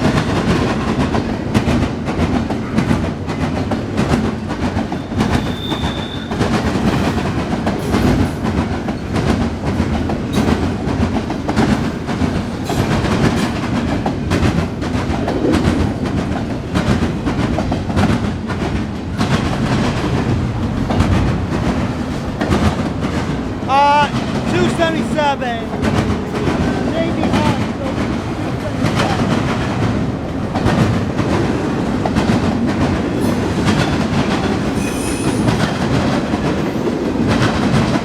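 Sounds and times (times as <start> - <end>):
train wheels clicking over rail joints: 0.0 - 38.0
high wheel squeal: 5.0 - 6.5, 34.8 - 35.6.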